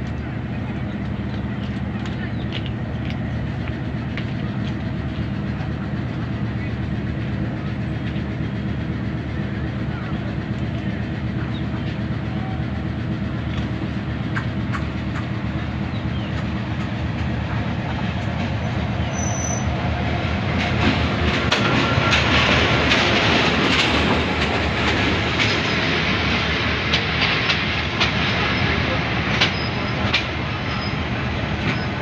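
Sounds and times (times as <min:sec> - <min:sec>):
diesel locomotive engine drone: 0:00.0 - 0:32.0
wheels clattering over rail joints: 0:20.4 - 0:32.0.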